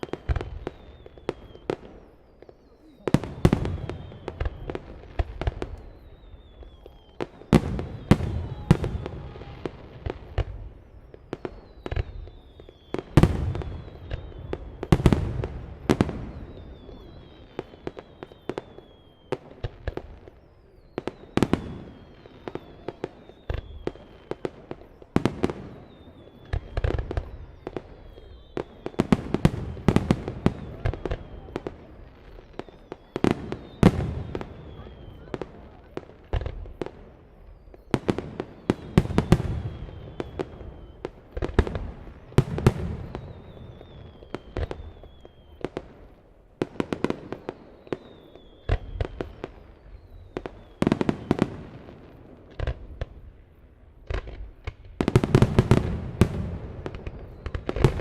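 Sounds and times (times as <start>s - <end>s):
falling high whistle: 0.0s - 14.9s, 15.8s - 36.0s, 42.6s - 45.8s
fireworks bangs: 0.0s - 58.0s.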